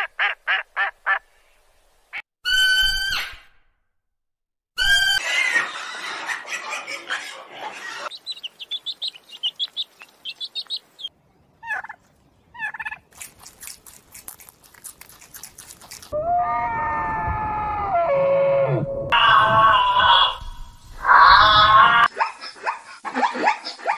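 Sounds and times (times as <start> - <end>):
chicks peeping: 7.7 - 16.0.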